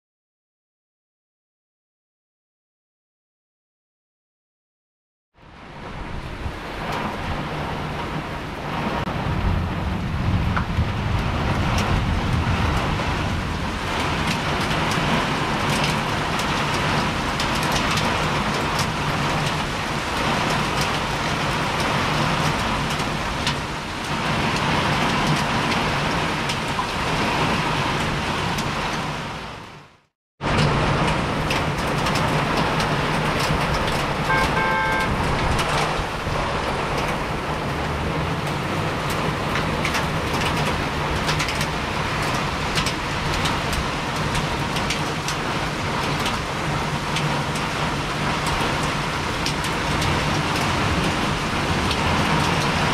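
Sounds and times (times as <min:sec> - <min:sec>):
short beeps: 0:34.3 - 0:35.2.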